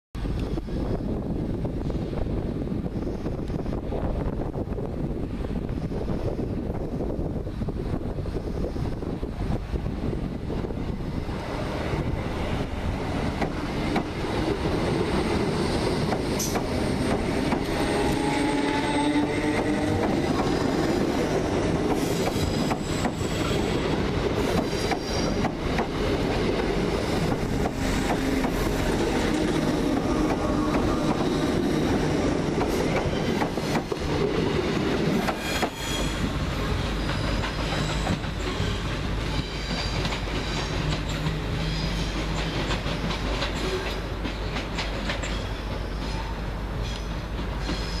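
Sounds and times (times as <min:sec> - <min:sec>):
train wheels clattering over rail joints: 0:13.0 - 0:46.2.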